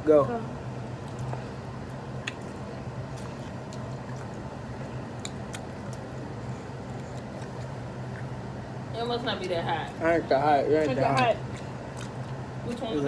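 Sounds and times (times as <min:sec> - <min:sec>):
steady low hum: 0:00.0 - 0:13.0
people chewing and biting: 0:01.0 - 0:08.4, 0:09.9 - 0:13.0
wet mouth clicks and smacks: 0:02.2 - 0:02.6.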